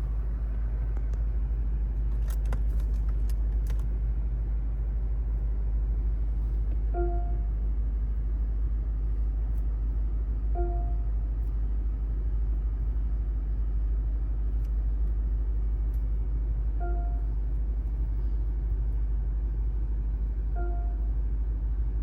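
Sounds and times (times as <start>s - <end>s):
car engine running: 0.0s - 4.0s.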